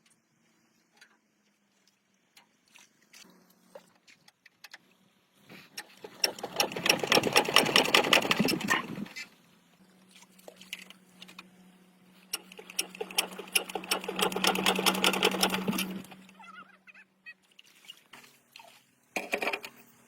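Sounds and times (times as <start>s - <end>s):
small machine rattling: 5.8s - 9.3s, 12.3s - 16.4s.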